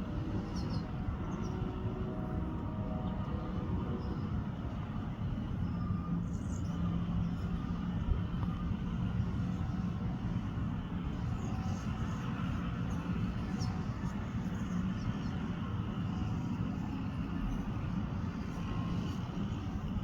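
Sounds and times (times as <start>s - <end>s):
faint sparrow chirps: 0.4s - 1.7s.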